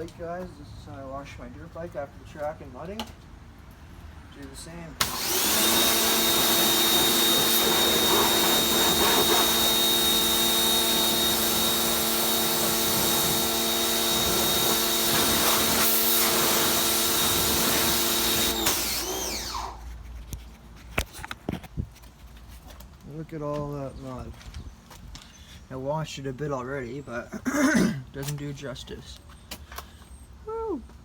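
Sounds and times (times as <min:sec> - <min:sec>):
small electric motor whining: 0:05.0 - 0:19.9.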